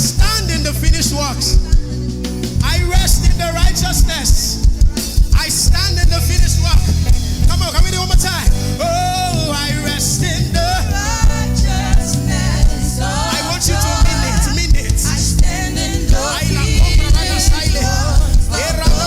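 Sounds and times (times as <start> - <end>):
gospel band playing: 0.0 - 19.0
people singing: 7.5 - 19.0.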